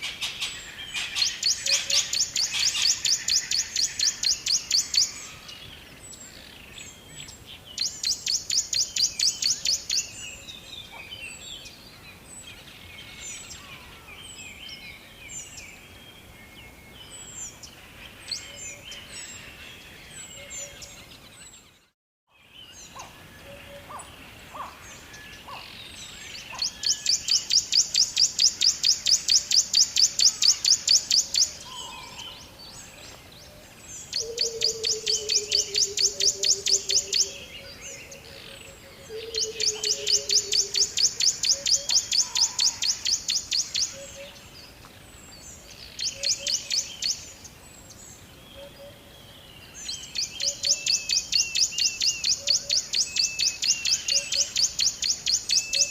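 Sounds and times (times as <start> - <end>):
bird singing rapid trill: 0.3 - 5.5, 22.4 - 32.5, 34.0 - 44.4, 49.6 - 55.9.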